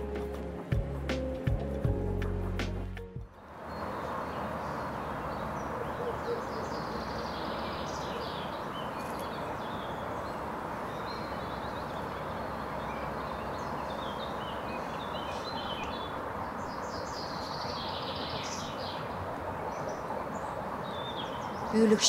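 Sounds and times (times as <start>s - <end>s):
small songbirds chirping: 3.3s - 22.0s.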